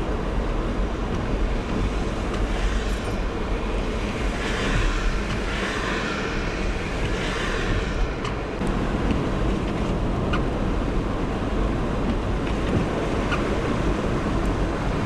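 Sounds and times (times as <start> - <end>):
car engine and tyres rumbling: 0.0 - 15.0
tyres hissing through slush: 1.3 - 9.1.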